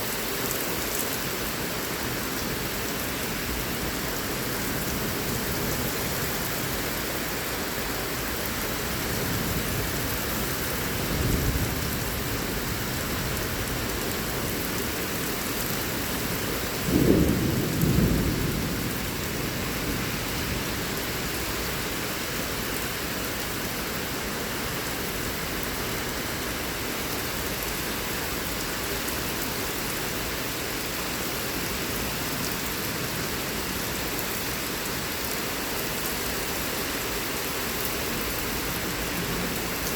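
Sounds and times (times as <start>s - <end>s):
heavy rain pouring: 0.0s - 39.9s
thunder rumbling: 16.8s - 20.6s.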